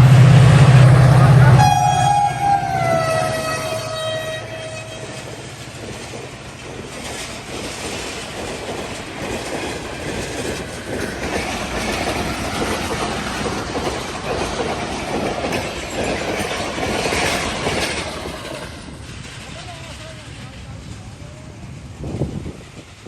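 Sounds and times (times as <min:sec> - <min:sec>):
train horn: 0:00.0 - 0:05.4
train wheels rumbling and clattering: 0:00.0 - 0:23.0.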